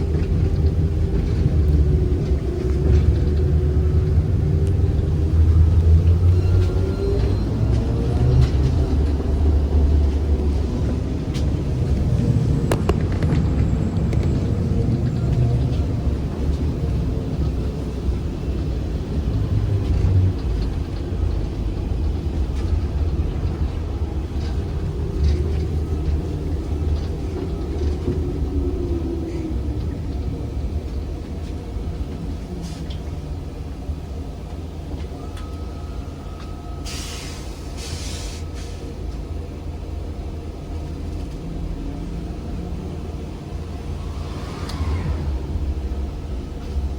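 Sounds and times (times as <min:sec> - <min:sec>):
low rumble of vehicle: 0:00.0 - 0:46.9
air release hiss: 0:36.9 - 0:38.8.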